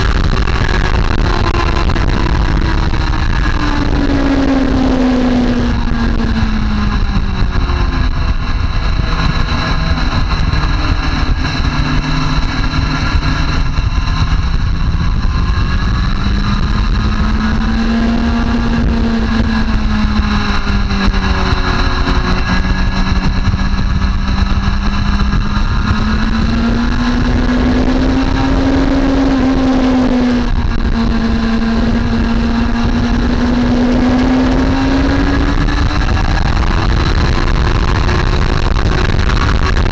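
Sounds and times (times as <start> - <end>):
low rushing noise: 0.0 - 39.9
motorcycle engine at speed: 0.0 - 39.9.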